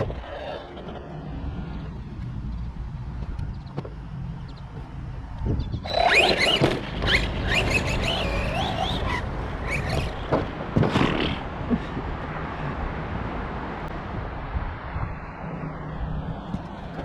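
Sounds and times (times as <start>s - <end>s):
tyre and dirt rush: 0.0s - 13.6s
electric motor whining: 5.4s - 10.3s.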